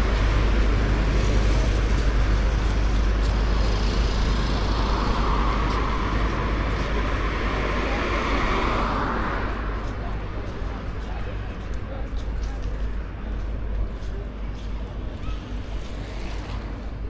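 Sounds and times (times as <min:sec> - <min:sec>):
passing vehicle: 0:00.0 - 0:10.8
road traffic rumble: 0:00.0 - 0:17.0.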